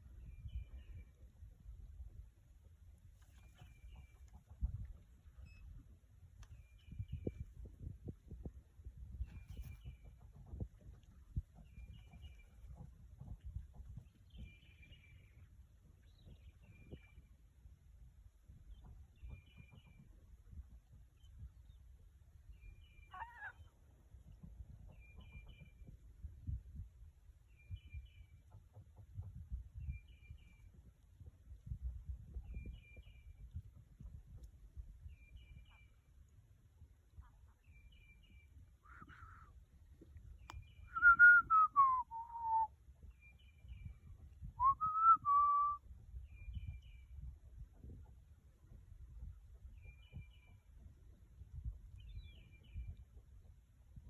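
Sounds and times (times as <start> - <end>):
person whistling: 41.0 - 42.7, 44.6 - 45.8.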